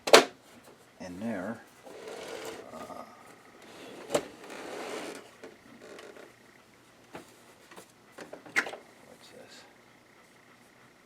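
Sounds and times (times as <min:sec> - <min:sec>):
plastic parts scraping and rattling: 0:01.8 - 0:02.9, 0:03.6 - 0:06.3.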